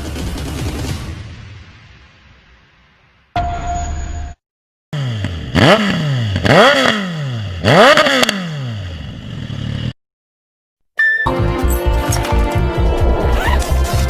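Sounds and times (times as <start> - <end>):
motorcycle engine revving: 4.9 - 10.0.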